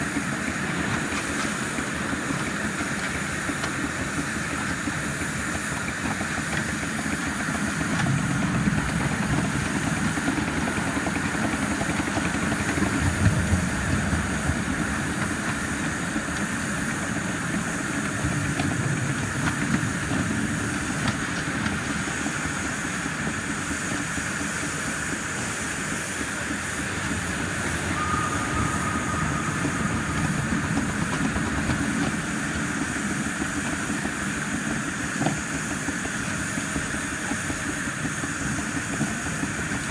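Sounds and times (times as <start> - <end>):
steam hissing: 0.0 - 39.9
train wheels rumbling on rails: 0.0 - 39.9.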